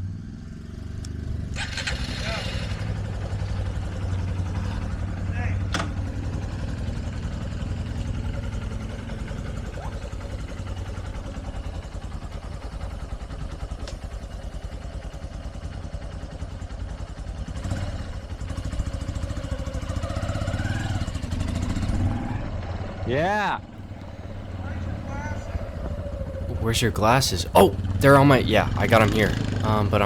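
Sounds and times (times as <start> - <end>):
motorcycle engine running: 23.9 - 30.0.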